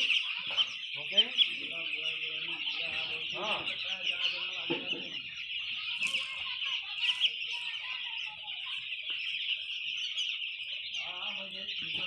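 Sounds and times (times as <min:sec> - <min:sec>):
chickens calling: 0:00.0 - 0:12.0.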